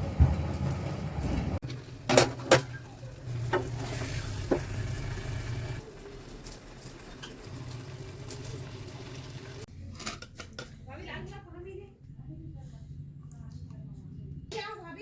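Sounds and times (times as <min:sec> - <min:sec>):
faint sizzle: 0:01.7 - 0:09.7.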